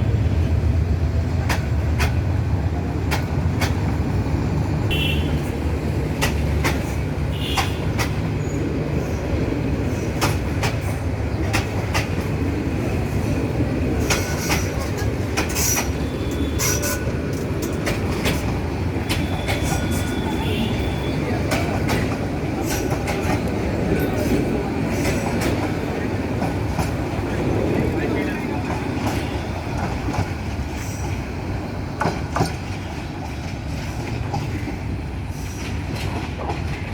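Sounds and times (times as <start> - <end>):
train rumbling on tracks: 0.0 - 36.9
wheels clacking over rail joints: 0.4 - 4.6, 5.4 - 36.9
faint wheel squeal on rails: 14.1 - 23.3.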